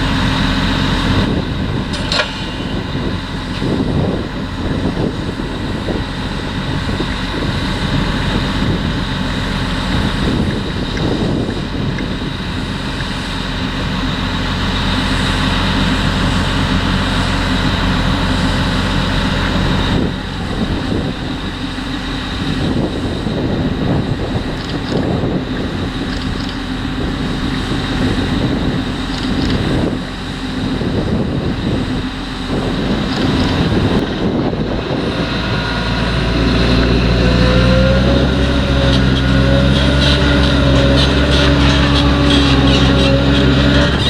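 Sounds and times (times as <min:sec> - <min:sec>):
diesel farm machinery droning: 0:00.0 - 0:44.0.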